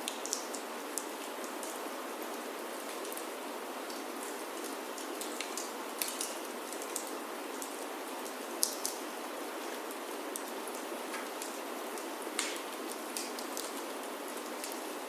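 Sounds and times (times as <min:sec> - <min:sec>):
rain on a wooden roof: 0:00.0 - 0:15.0
wood fire crackling: 0:03.9 - 0:14.8.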